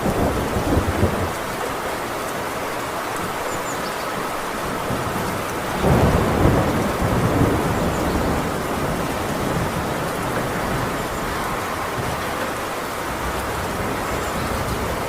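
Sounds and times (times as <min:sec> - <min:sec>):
heavy rain on a tin roof: 0:00.0 - 0:15.0
thunder rumbling: 0:04.8 - 0:15.0.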